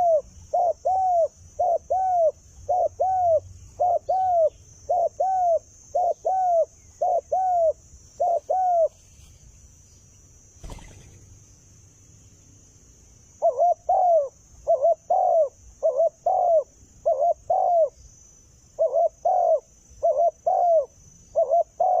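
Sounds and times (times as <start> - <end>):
dove cooing: 0.0 - 9.0, 13.4 - 18.0, 18.8 - 22.0.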